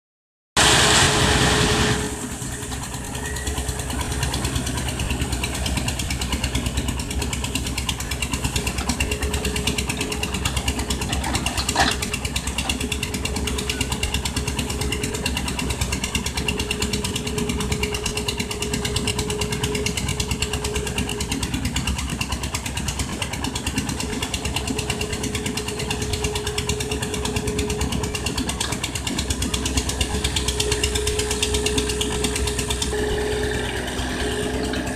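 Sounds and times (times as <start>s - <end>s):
loud rush of noise: 0.6s - 2.3s
excavator diesel engine running: 0.6s - 34.9s.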